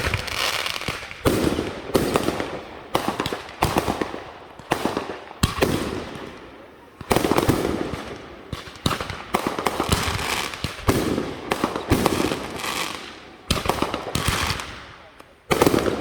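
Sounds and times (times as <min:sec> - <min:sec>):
fireworks bangs and crackle: 0:00.0 - 0:16.0.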